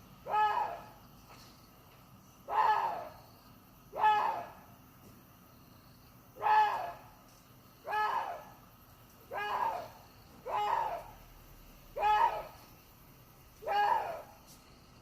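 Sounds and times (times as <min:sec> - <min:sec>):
deer barking: 0:09.3 - 0:11.2, 0:12.0 - 0:12.6.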